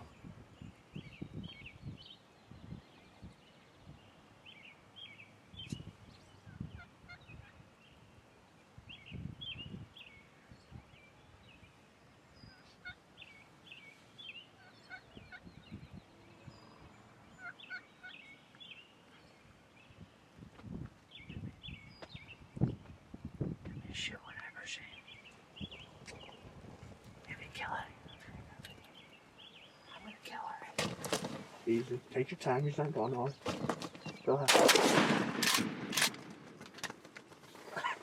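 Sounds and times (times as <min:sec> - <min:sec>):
wild turkeys calling: 0:12.6 - 0:13.0, 0:14.5 - 0:15.4, 0:17.4 - 0:18.4
low rustles and thumps: 0:30.8 - 0:31.7, 0:33.4 - 0:34.3.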